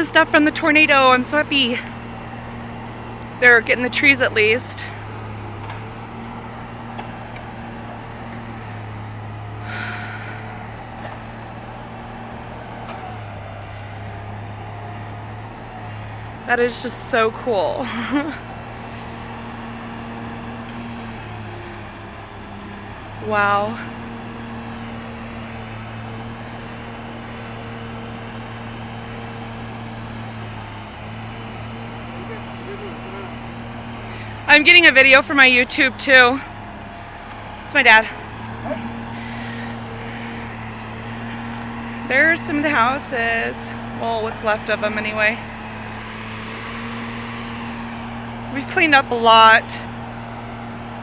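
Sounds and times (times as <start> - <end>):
vehicle engine hum: 0.0 - 51.0.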